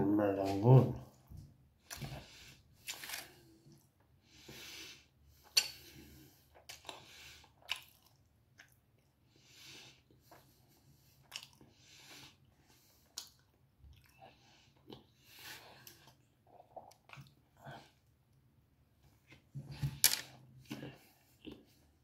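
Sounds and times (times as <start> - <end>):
wet chewing mouth noises: 6.6 - 9.1.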